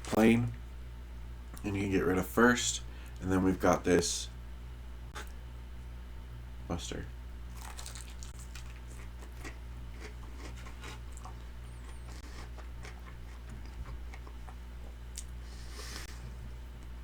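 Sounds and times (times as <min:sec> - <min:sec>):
crunchy chewing: 0:07.5 - 0:16.2.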